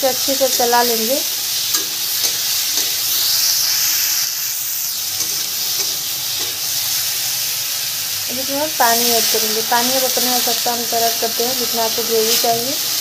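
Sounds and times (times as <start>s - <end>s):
food sizzling in a pan: 0.0s - 13.0s
spatula scraping a pan: 1.4s - 7.5s.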